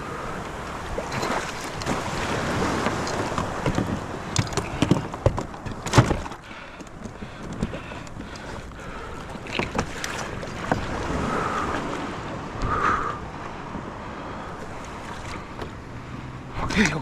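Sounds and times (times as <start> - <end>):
surf: 0.0 - 17.0
wind: 0.0 - 17.0
knocks and thumps of gear: 2.8 - 8.7, 9.3 - 10.9.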